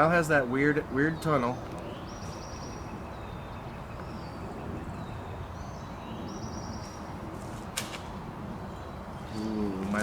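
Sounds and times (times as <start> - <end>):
songbird trilling: 1.0 - 7.1.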